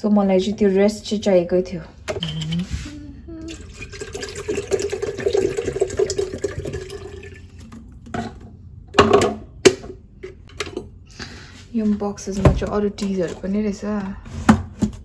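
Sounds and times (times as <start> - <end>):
water running into a kettle: 3.5 - 8.0.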